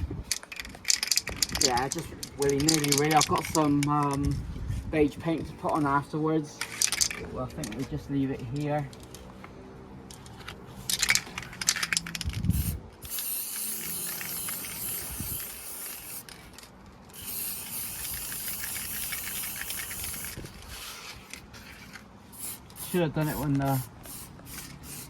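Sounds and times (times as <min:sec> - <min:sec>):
spray can hissing: 0:12.5 - 0:16.4, 0:17.1 - 0:21.1, 0:21.8 - 0:25.0.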